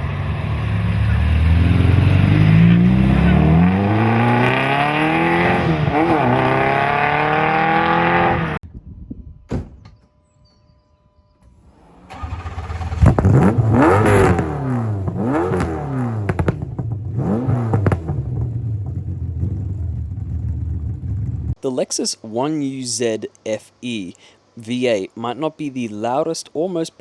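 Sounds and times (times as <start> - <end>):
car engine revving: 0.0 - 8.6, 11.6 - 21.6
thump: 9.5 - 10.1, 16.3 - 16.9.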